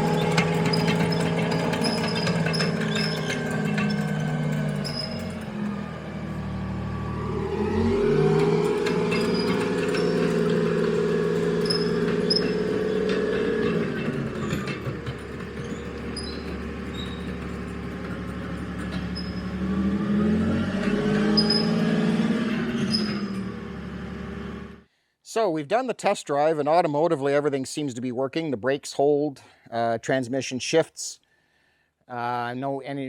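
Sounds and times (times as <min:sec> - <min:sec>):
short high squeaks: 0:00.0 - 0:07.2, 0:07.8 - 0:19.9, 0:20.9 - 0:23.8
armoured vehicle engine under load: 0:00.0 - 0:24.8.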